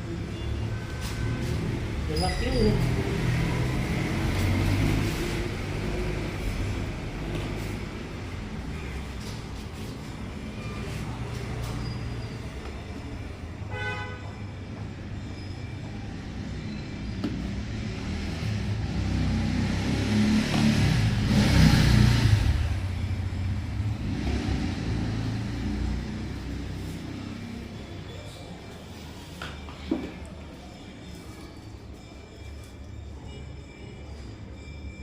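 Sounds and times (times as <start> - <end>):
vehicle passing: 1.0 - 12.6, 17.5 - 28.6
car horn toot: 13.6 - 14.4.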